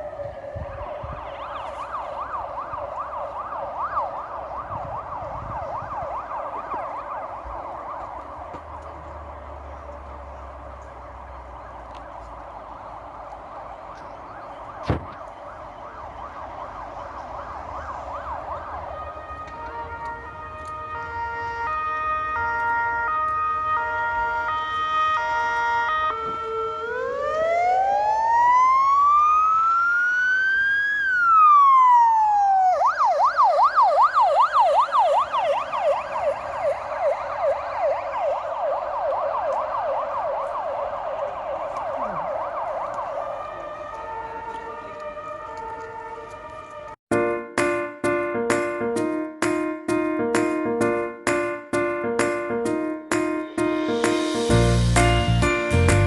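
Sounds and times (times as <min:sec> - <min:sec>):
electronic siren: 0:00.0 - 0:08.6, 0:11.6 - 0:47.0.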